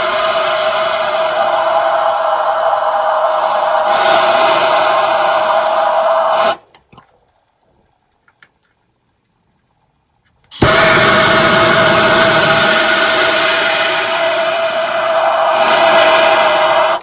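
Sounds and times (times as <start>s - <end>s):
torch flame hissing: 0.0s - 6.6s, 10.5s - 17.0s.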